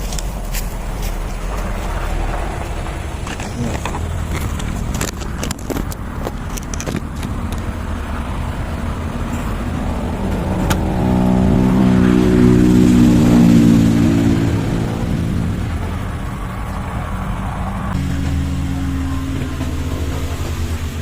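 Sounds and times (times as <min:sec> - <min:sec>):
low rumble: 0:00.0 - 0:21.0
vehicle engine running: 0:00.0 - 0:21.0.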